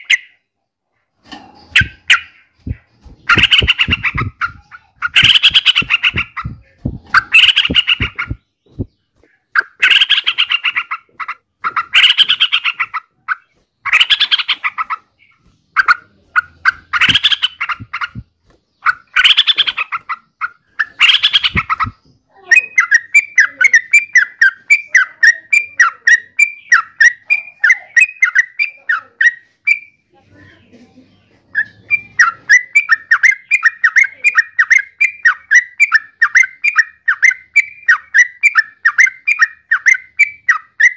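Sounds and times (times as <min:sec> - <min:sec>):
bulbul singing bubbly phrases: 0:01.8 - 0:08.9, 0:21.0 - 0:29.5.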